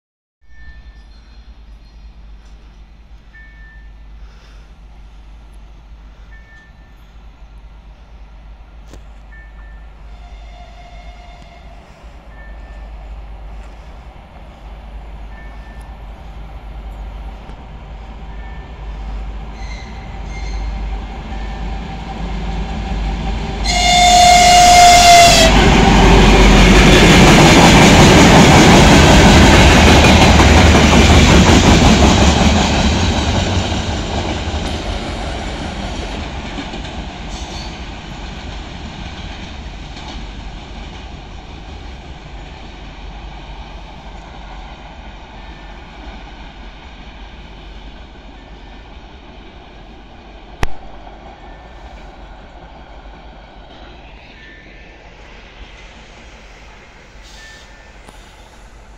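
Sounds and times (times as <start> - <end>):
wheels rumbling on rail: 0.5 - 58.9
train horn: 10.0 - 11.9, 19.5 - 26.6.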